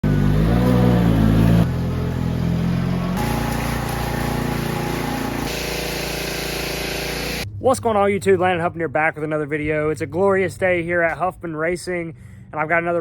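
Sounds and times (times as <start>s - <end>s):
engine running: 0.0s - 7.5s.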